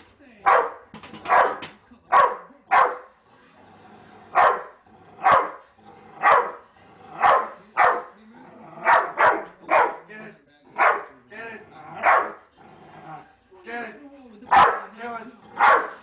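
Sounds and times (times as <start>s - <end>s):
dog barking: 0.4s - 3.1s, 4.3s - 5.6s, 6.2s - 6.6s, 7.2s - 8.2s, 8.8s - 10.1s, 10.7s - 11.2s, 12.0s - 12.5s, 14.5s - 15.0s, 15.6s - 16.0s.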